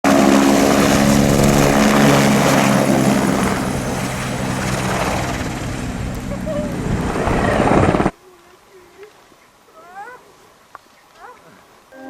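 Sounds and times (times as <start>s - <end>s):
propeller aircraft engine drone: 0.0s - 8.1s
rushing air: 0.4s - 8.1s.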